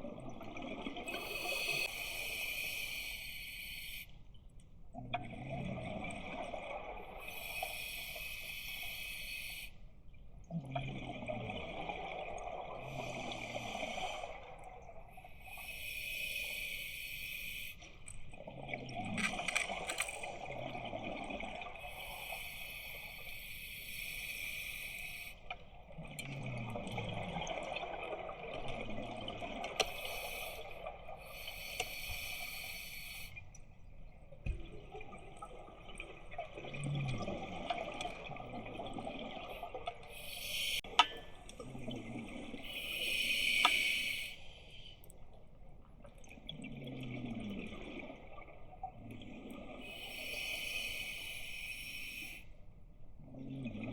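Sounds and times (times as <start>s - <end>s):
gurgling exhaled bubbles: 0.0s - 2.0s, 4.9s - 7.3s, 10.5s - 15.2s, 25.8s - 31.2s, 34.6s - 44.2s, 46.1s - 51.0s
regulator hissing inhale: 1.2s - 4.1s, 7.2s - 9.8s, 15.5s - 17.8s, 21.9s - 25.4s, 29.8s - 33.4s, 40.0s - 40.9s, 42.7s - 45.0s, 49.9s - 52.5s.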